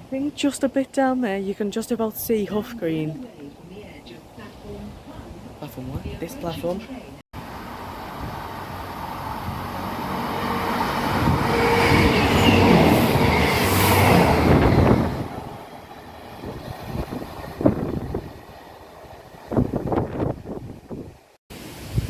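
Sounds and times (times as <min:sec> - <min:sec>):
passenger train passing: 0:02.6 - 0:21.4
steady tones: 0:07.4 - 0:20.6.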